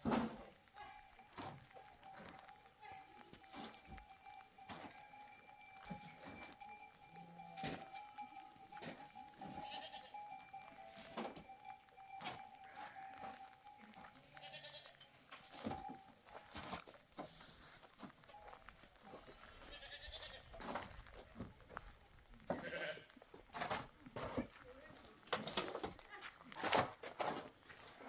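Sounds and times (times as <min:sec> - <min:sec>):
livestock bleating faintly: 0:00.1 - 0:16.0, 0:19.0 - 0:20.8, 0:22.5 - 0:23.2.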